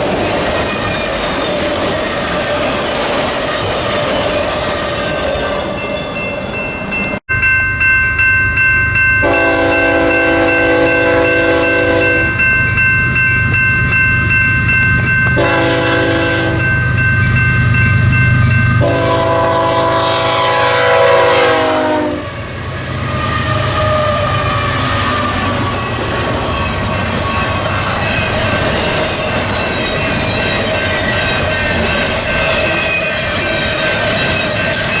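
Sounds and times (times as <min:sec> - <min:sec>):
low rumble of locomotive engines: 0:06.9 - 0:35.0
locomotive air horn blasts: 0:09.2 - 0:12.3, 0:15.4 - 0:16.7, 0:18.8 - 0:22.4.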